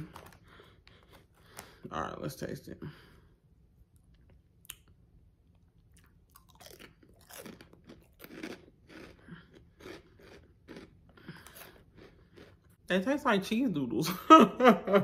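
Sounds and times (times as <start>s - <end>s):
crunchy snack chewing: 5.5s - 12.8s.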